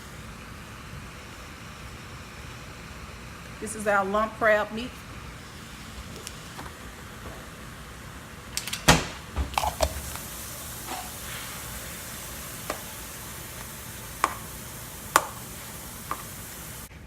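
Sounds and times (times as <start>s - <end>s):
food sizzling in a frying pan: 9.6s - 16.9s
utensil knocking against pan: 14.2s - 14.5s, 15.1s - 16.3s.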